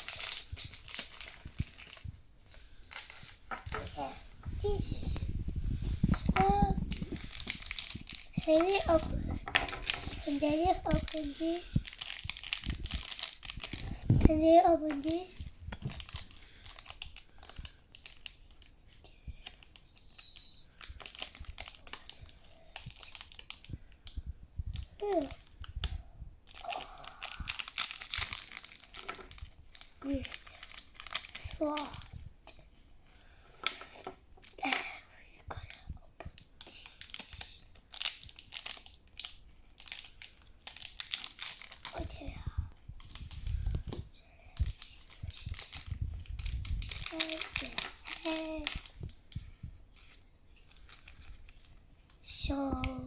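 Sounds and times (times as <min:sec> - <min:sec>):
plastic packaging crinkling: 0:00.0 - 0:34.7, 0:36.6 - 0:52.4.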